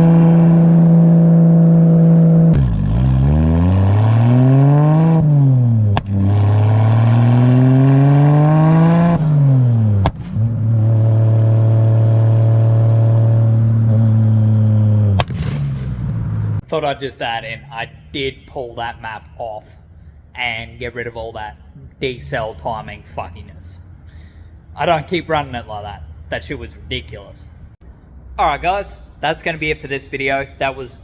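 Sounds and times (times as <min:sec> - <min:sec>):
car exhaust revving: 0:00.0 - 0:16.6
exhaust cracks: 0:00.0 - 0:20.2.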